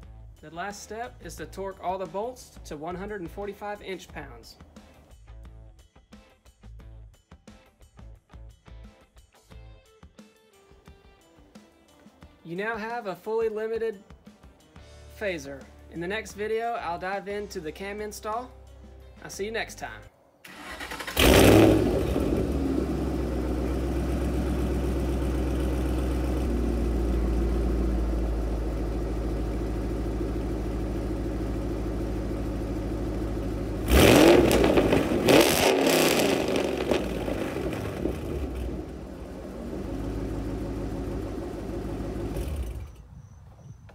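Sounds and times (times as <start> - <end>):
car engine starting and idling: 20.4 - 43.1
car engine revving: 20.5 - 43.0.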